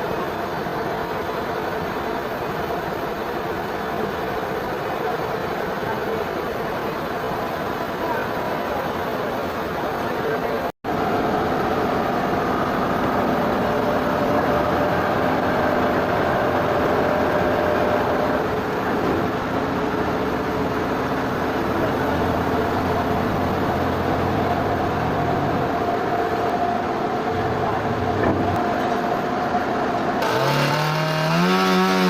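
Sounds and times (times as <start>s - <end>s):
sawmill machinery running: 10.9s - 32.0s.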